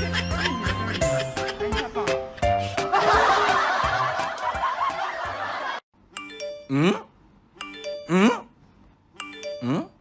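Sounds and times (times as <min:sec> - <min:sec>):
background music: 0:00.0 - 0:05.8
people laughing: 0:00.0 - 0:05.8.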